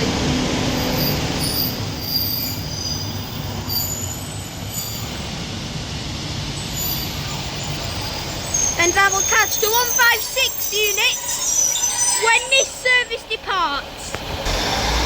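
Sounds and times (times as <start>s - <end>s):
diesel train engine rumbling: 0.0s - 15.0s
short high squeaks: 6.8s - 13.0s.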